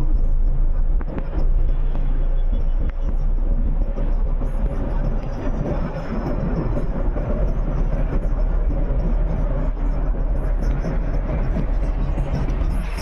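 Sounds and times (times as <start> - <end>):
vehicle running: 0.0 - 13.0.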